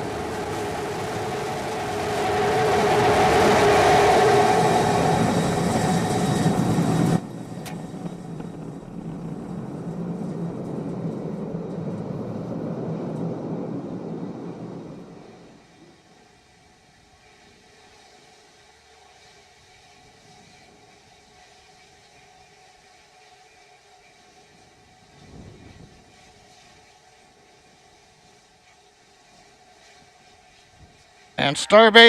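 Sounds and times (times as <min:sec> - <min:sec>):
rocket engines roaring: 0:00.0 - 0:15.5, 0:31.4 - 0:32.0.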